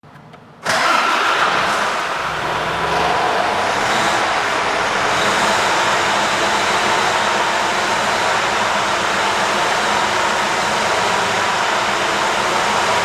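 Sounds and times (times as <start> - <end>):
diesel truck engine starting: 0.6 - 13.0.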